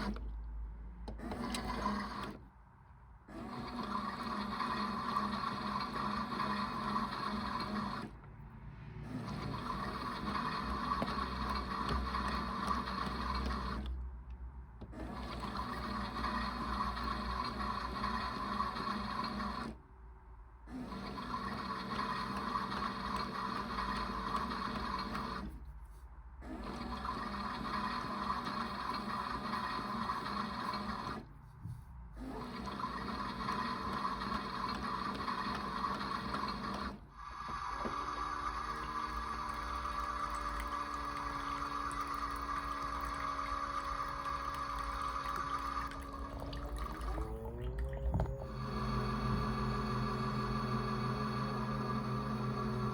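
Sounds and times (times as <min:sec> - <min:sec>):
small electric motor humming: 0:37.2 - 0:52.9.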